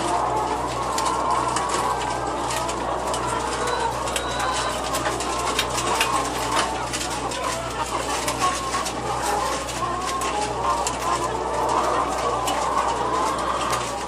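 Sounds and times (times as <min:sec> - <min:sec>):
chickens calling: 0:00.0 - 0:14.0.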